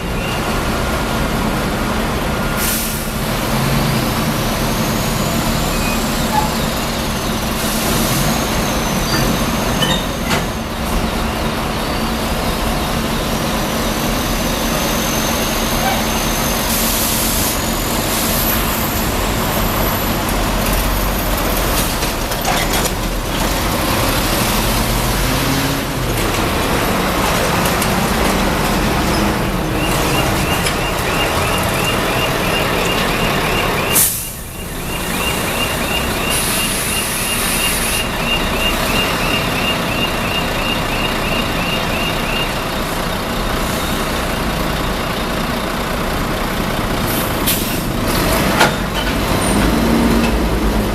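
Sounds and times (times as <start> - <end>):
heavy truck running: 0.0 - 50.9
fast high-pitched beeping: 29.5 - 42.6.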